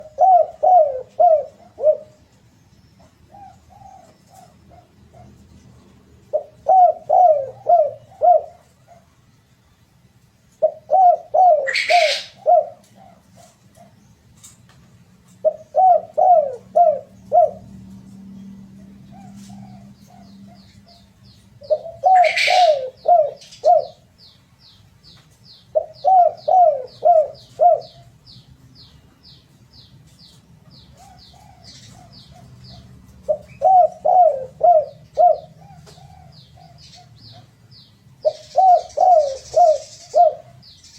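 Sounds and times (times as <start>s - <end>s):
dove cooing: 0.0s - 2.2s, 3.0s - 9.2s, 10.6s - 14.0s, 15.3s - 24.1s, 25.6s - 28.4s, 30.7s - 37.6s, 38.2s - 40.9s
bird chirping high ticks: 23.4s - 26.2s.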